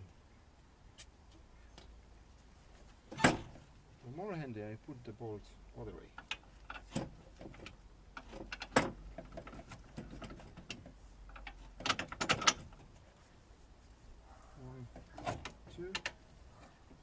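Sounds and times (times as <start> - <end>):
metallic clicks of tools: 1.0 - 1.9.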